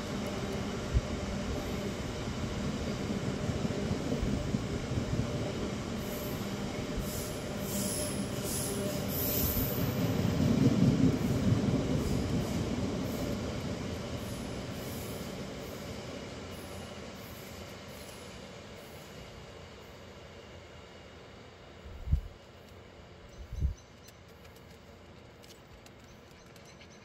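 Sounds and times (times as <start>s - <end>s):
freight train rumbling past: 0.0s - 23.2s.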